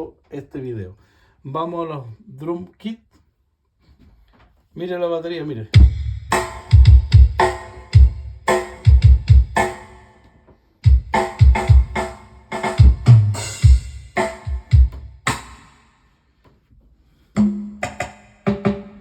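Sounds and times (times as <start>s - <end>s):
sampled drum hits: 5.8s - 9.8s, 10.9s - 15.6s.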